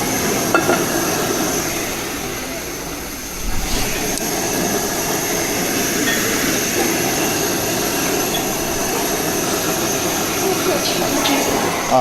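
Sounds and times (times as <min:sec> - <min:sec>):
gas burner roaring: 0:00.0 - 0:12.0.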